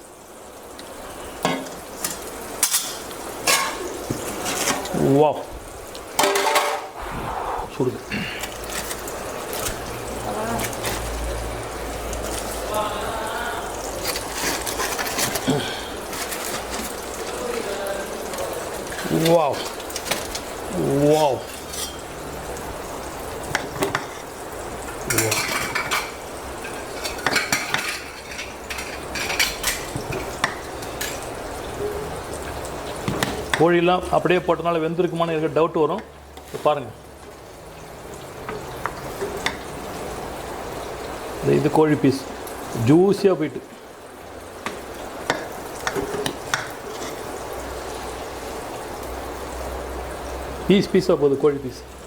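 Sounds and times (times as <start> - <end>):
steady hiss: 0.1 - 10.4.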